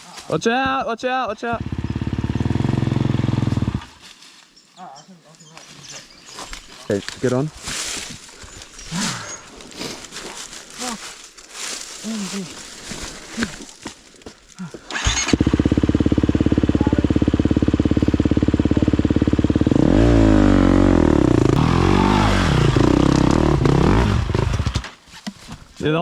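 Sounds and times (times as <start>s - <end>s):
dirt bike engine idling and revving: 1.4s - 4.0s, 14.9s - 24.9s.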